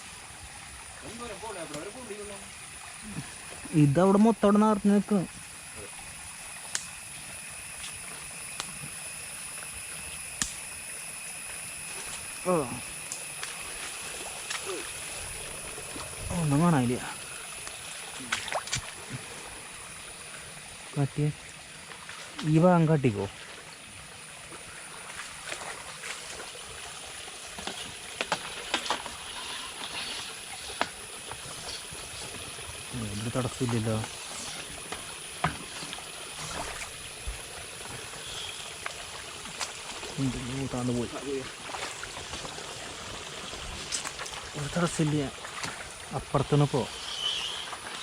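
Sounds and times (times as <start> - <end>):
water running through a drain: 0.0 - 48.0
faint clicks: 10.4 - 10.6
small knocks and splashes: 13.0 - 15.0, 17.5 - 19.3, 21.8 - 22.6, 24.5 - 32.6, 33.2 - 38.1, 38.8 - 46.4.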